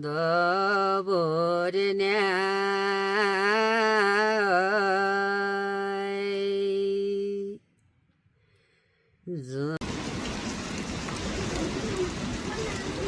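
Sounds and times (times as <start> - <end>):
person singing ornamented line: 0.0 - 7.6.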